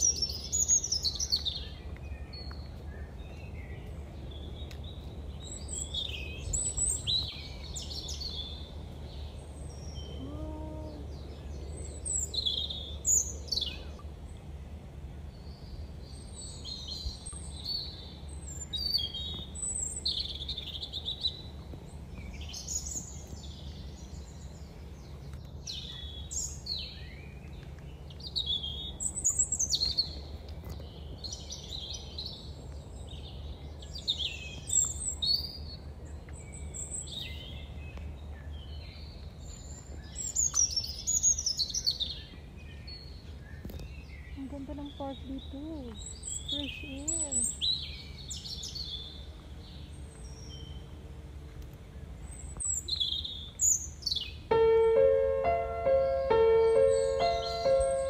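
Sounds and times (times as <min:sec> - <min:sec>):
songbirds singing and calling: 0:00.0 - 0:58.0
low steady rumble: 0:42.0 - 0:58.0.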